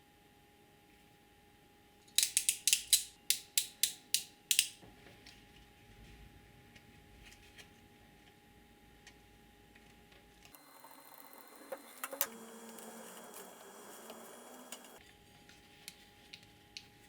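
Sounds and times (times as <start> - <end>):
small metal mechanism clicking: 2.0 - 4.8.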